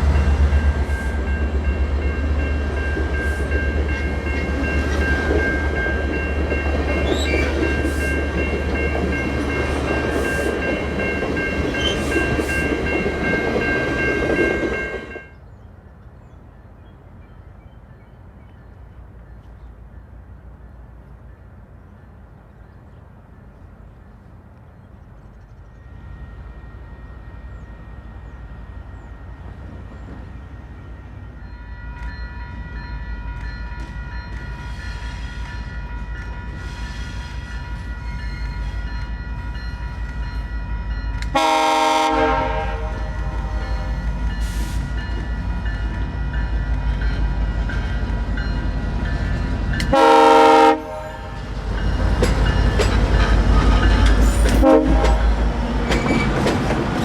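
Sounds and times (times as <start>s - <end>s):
diesel locomotive rumbling: 0.0s - 57.0s
locomotive air horn: 41.3s - 44.8s, 49.9s - 51.4s, 54.6s - 55.4s.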